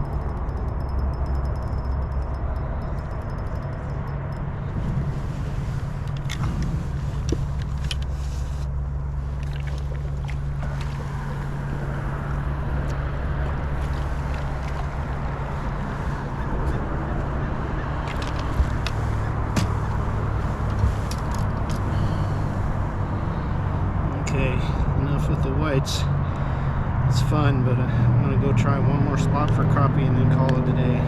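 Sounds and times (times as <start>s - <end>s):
boat motor humming: 0.0s - 24.0s.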